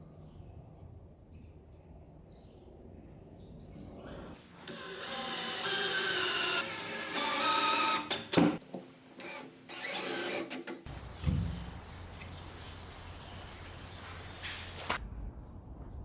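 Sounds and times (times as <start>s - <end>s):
power drill whining: 4.6s - 8.4s, 9.2s - 10.7s.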